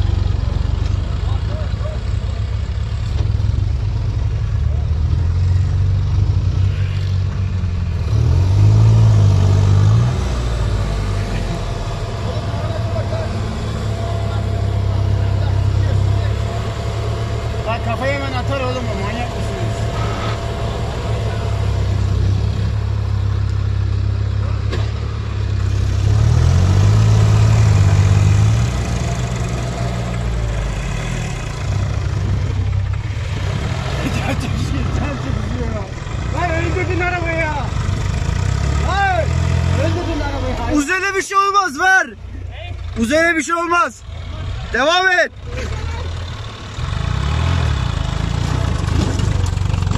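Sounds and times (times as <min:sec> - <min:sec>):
tractor diesel engine revving: 0:00.0 - 0:49.9.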